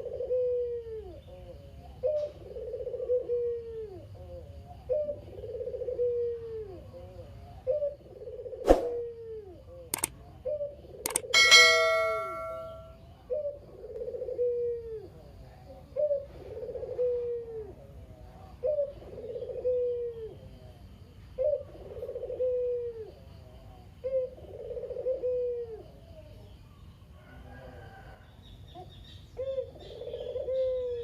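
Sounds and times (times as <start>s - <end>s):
dove cooing: 0.0s - 26.5s, 28.7s - 31.0s
loud metallic clang: 11.4s - 12.9s.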